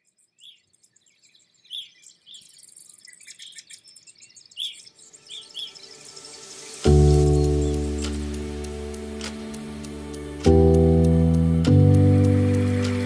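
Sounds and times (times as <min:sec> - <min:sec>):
small birds chirping: 0:00.0 - 0:13.0
high steady twittering: 0:01.8 - 0:10.2.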